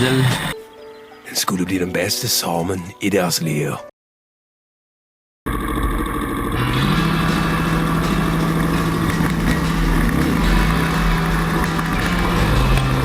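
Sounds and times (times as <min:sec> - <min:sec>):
dirt bike engine running: 0:05.5 - 0:13.0.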